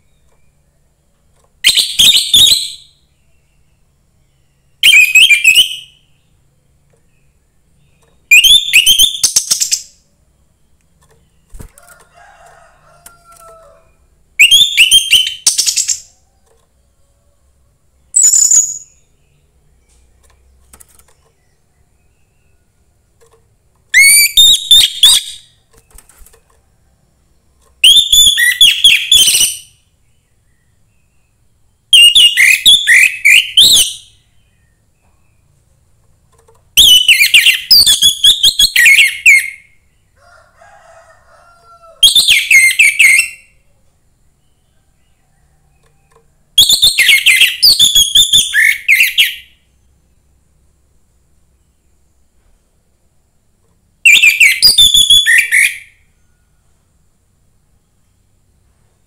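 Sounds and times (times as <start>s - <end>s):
thrush singing whistled notes: 1.6s - 3.0s, 4.6s - 6.1s, 8.3s - 10.0s, 14.4s - 16.2s, 18.1s - 19.2s, 23.9s - 25.5s, 27.8s - 29.8s, 31.9s - 34.2s, 36.8s - 39.7s, 42.0s - 43.6s, 46.6s - 49.6s, 54.0s - 55.9s.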